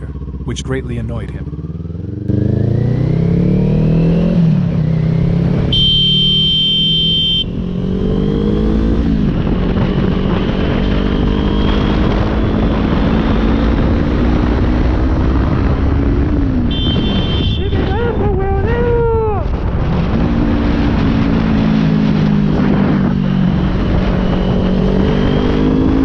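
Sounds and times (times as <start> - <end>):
motorcycle engine accelerating: 0.0 - 26.0
vehicle horn: 5.7 - 7.6, 16.6 - 18.0.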